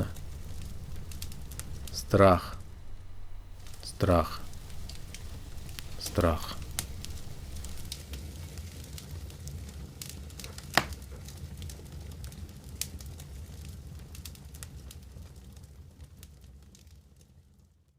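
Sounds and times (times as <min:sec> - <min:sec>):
low steady fire rumble: 0:00.0 - 0:07.9
wood fire crackling and popping: 0:00.0 - 0:07.9.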